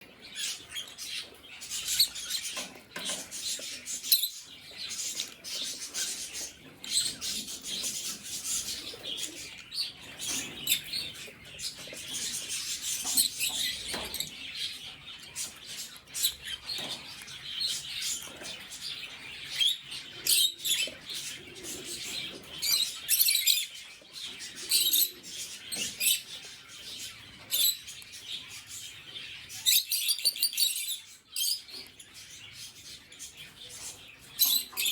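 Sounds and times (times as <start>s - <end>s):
lovebirds chirping: 0.0s - 34.9s.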